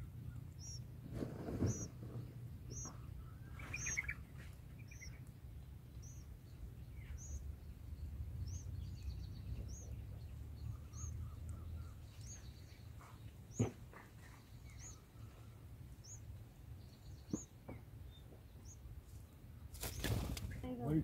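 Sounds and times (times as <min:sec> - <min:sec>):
steady low rumble: 0:00.0 - 0:12.9
small bird chirping: 0:00.0 - 0:21.0.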